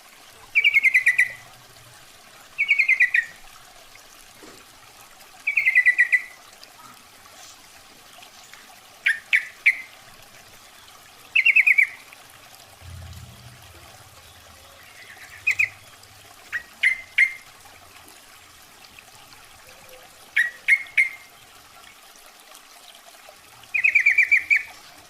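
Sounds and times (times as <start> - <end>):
bulbul chattering call: 14.2 - 15.9.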